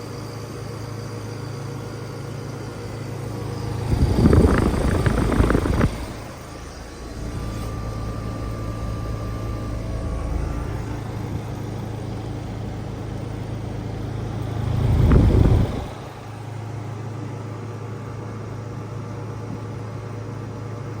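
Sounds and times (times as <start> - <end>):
heat pump compressor humming: 0.0 - 21.0
rush of refrigerant: 2.6 - 17.9.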